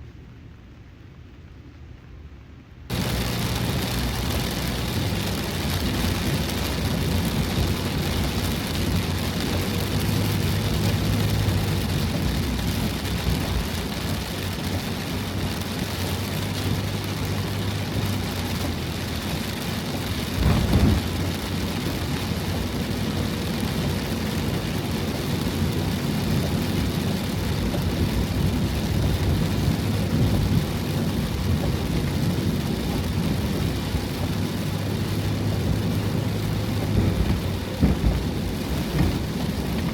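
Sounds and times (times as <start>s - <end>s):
heavy rain and wind on van: 0.0s - 39.9s
loud thump: 20.4s - 21.0s, 36.9s - 39.3s.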